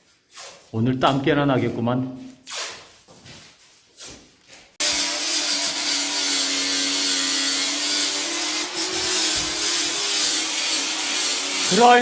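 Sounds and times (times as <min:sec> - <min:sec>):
angle grinder grinding plaster: 0:04.8 - 0:12.0.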